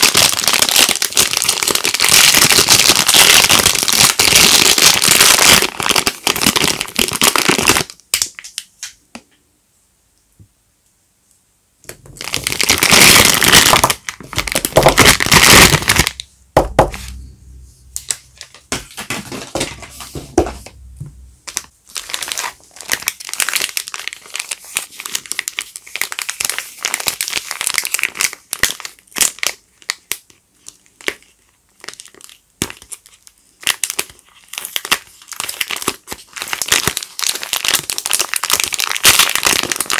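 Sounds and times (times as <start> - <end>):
wrappers crinkling and tearing: 0.0 - 8.4, 12.1 - 16.2, 21.4 - 39.9.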